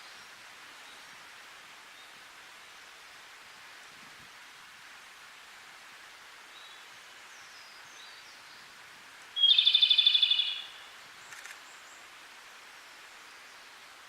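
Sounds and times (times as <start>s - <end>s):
steady background hiss: 0.0s - 14.0s
bird singing a trill: 9.4s - 10.9s.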